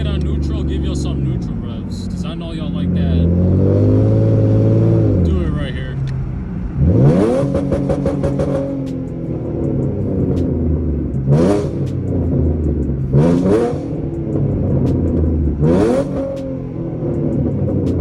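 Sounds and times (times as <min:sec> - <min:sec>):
car engine revving: 0:00.0 - 0:18.0
exhaust crackles: 0:00.0 - 0:18.0.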